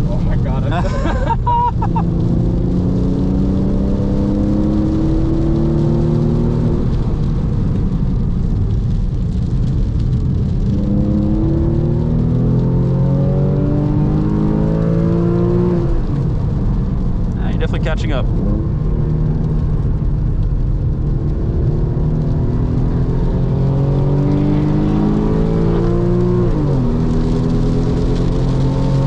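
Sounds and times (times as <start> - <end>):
car engine accelerating: 0.0 - 29.0
road and tyre noise: 0.0 - 29.0.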